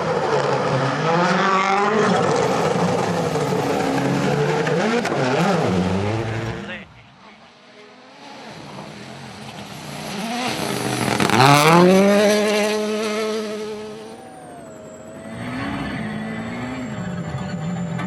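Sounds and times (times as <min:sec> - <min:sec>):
rally car engine passing: 0:00.0 - 0:18.0.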